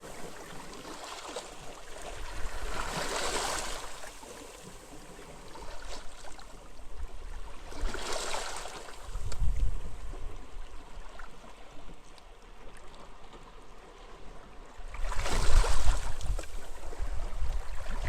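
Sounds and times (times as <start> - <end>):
sea waves washing onto a beach: 0.0 - 10.6.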